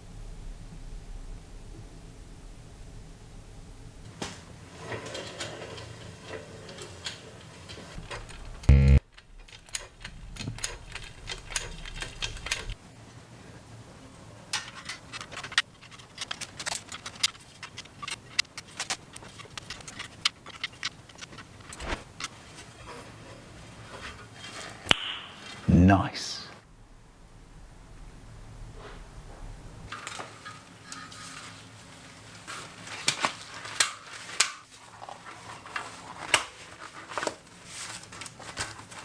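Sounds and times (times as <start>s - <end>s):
light clicks and ticks of hand work: 4.9s - 12.8s, 14.5s - 22.8s.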